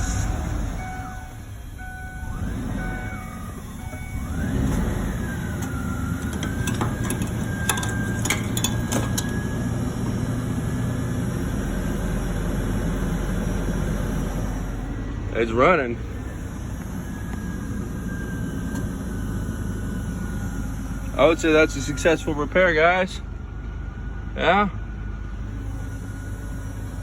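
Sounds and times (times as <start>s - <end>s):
car engine revving and idling: 0.0s - 27.0s.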